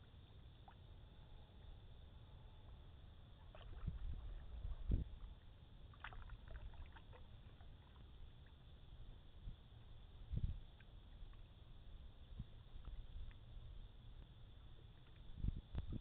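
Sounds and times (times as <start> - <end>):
water dripping and splashing: 3.5 - 5.0, 5.9 - 8.0
wind on microphone: 3.6 - 5.3, 10.2 - 10.6, 15.3 - 16.0.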